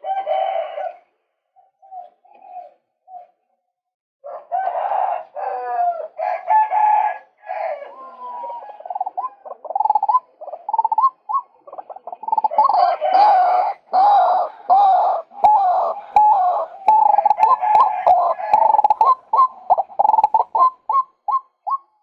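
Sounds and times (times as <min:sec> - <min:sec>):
waterhen harsh calls: 0:08.8 - 0:21.9.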